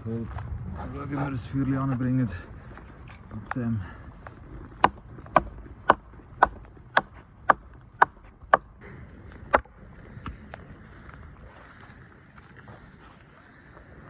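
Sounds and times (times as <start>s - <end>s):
axe chopping wood: 4.8s - 8.7s.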